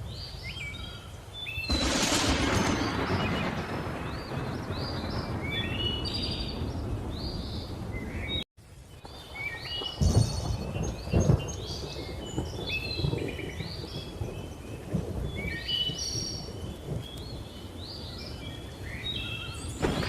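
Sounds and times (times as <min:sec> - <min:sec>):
sharp thunderclap: 0:01.7 - 0:08.0, 0:09.9 - 0:17.1, 0:19.8 - 0:20.0
thunder rumble: 0:01.7 - 0:08.4, 0:09.8 - 0:18.4, 0:19.4 - 0:20.0
birds chirping and whistling: 0:02.6 - 0:20.0.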